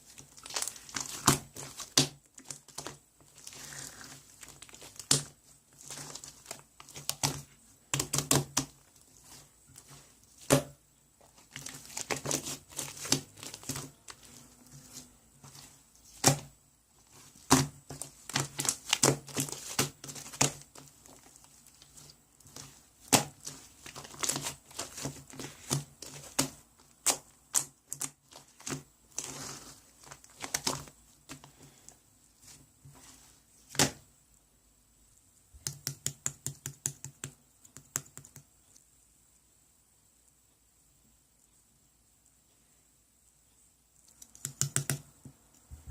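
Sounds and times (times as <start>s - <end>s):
sharp clicks and taps: 44.1s - 45.9s.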